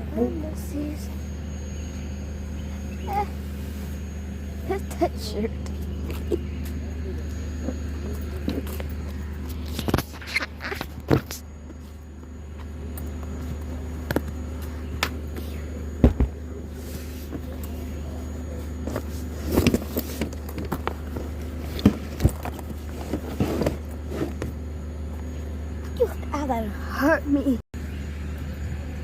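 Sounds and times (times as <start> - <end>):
car engine humming: 0.0 - 29.0
knocks and clunks of handling: 18.8 - 24.6.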